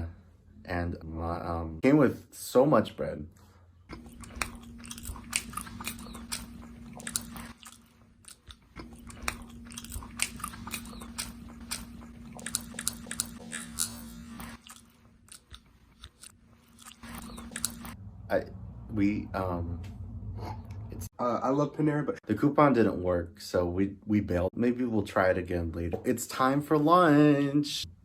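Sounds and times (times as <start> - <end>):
steady low hum: 3.3 - 21.1
person chewing food: 3.9 - 18.0.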